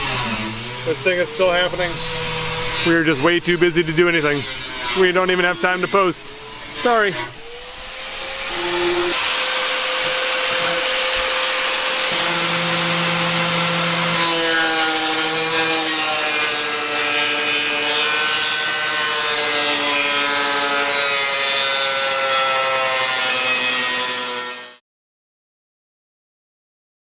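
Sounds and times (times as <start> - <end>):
power grinder grinding: 0.0 - 24.8.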